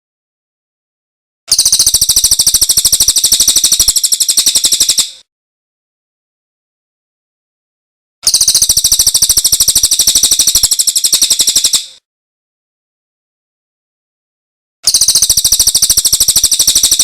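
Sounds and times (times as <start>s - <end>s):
songbird rapid trill: 1.5s - 5.2s, 8.2s - 12.0s, 14.8s - 17.0s.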